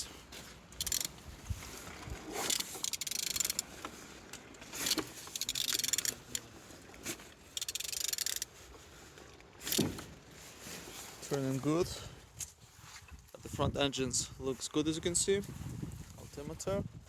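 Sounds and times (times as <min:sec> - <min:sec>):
ratchet wrench clicking: 0:00.8 - 0:01.1, 0:02.5 - 0:03.6, 0:04.8 - 0:06.4, 0:07.6 - 0:08.5.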